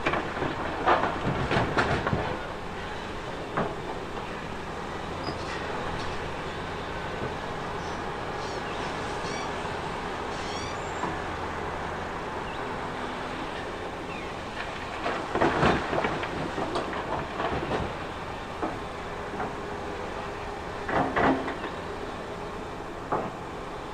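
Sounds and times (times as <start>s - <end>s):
diesel engine running: 0.0s - 23.9s
short high squeaks: 7.8s - 11.1s.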